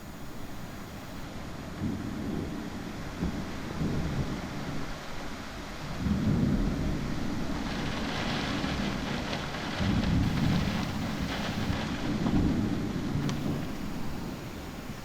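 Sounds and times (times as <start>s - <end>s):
heavy rain hissing: 0.0s - 1.2s, 9.8s - 12.3s, 13.2s - 15.0s
thunder rumbling: 0.0s - 1.2s, 6.0s - 15.0s.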